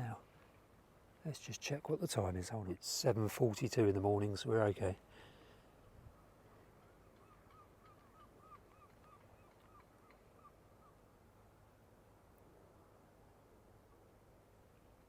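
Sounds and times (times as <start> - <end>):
faint bird calling: 5.1 - 11.1.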